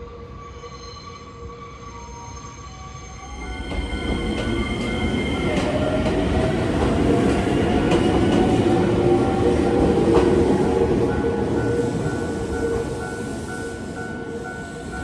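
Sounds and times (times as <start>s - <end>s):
train rumble with rail clicks: 3.3s - 15.0s.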